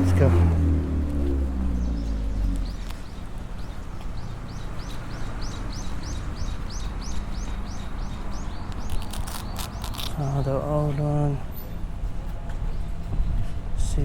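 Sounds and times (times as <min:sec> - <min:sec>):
steady low rumble: 0:00.0 - 0:03.7
bird chirping rapidly: 0:01.4 - 0:10.8.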